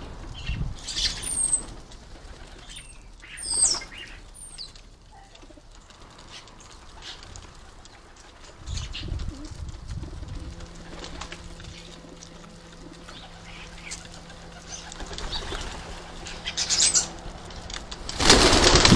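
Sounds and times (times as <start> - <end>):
birds chirping: 0.0 - 18.9
pigeons cooing: 0.0 - 18.9
wings flapping: 0.0 - 18.9
loud bird call: 11.4 - 17.2.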